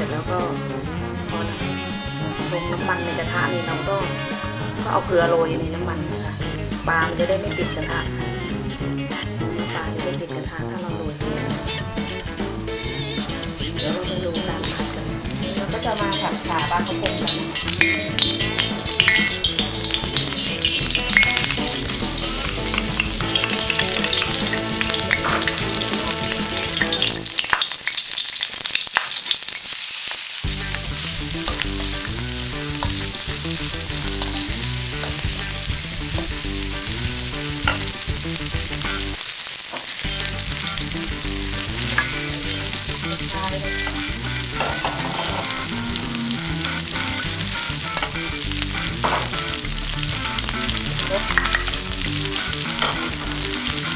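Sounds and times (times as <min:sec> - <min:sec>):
hot oil sizzling in a wok: 0:00.0 - 0:53.9
spatula scraping a pan: 0:14.4 - 0:29.8, 0:30.4 - 0:39.0, 0:39.8 - 0:53.9.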